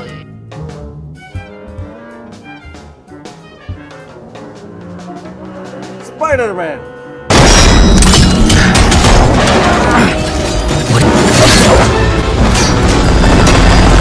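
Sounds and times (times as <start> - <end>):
dramatic background music: 0.0 - 14.0
crashes and booms: 7.3 - 14.0.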